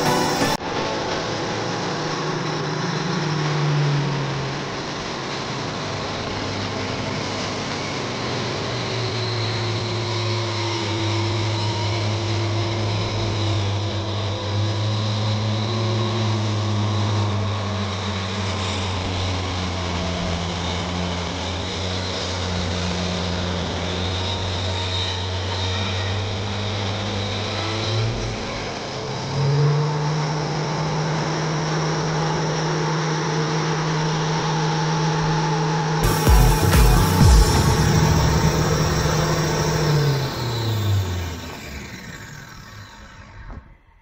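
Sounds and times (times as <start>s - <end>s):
engine running steadily: 36.0s - 43.2s.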